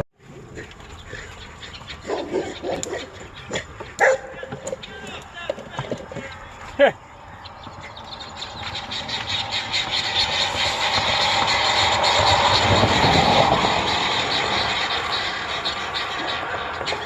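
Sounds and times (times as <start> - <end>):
road vehicle passing by: 5.3 - 17.0.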